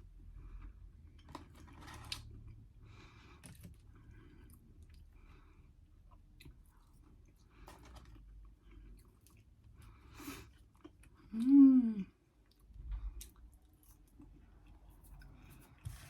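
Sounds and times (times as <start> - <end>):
close-up chewing: 4.4 - 11.4
person humming mmm: 11.3 - 12.1.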